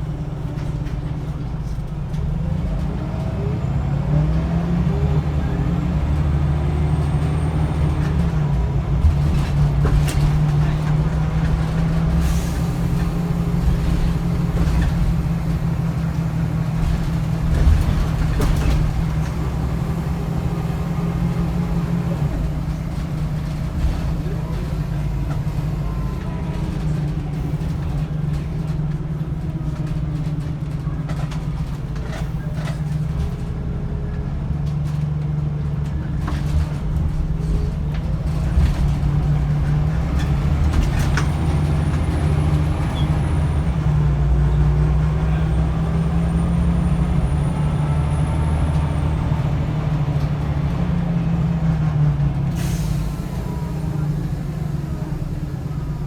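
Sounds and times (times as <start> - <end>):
bus diesel engine running: 0.0 - 56.0.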